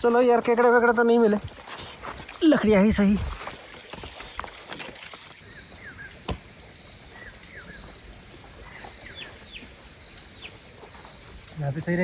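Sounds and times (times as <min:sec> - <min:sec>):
falling bird chirps: 0:03.8 - 0:11.4.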